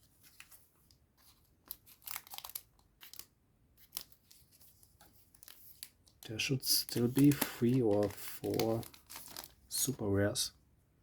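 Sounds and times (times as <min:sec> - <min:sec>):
foil wrapper tearing and crinkling: 0:01.7 - 0:04.4, 0:05.3 - 0:09.6.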